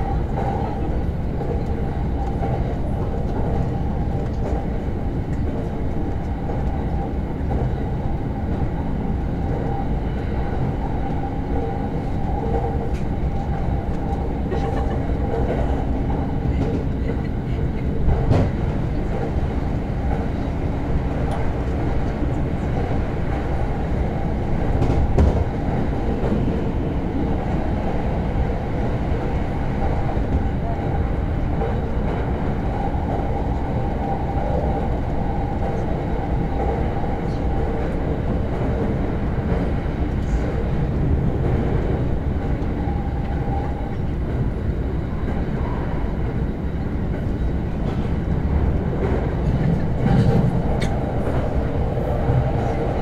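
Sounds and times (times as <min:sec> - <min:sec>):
train wheels rumbling on rail: 0:00.0 - 0:53.0
track knocks: 0:11.6 - 0:19.4, 0:24.6 - 0:26.7.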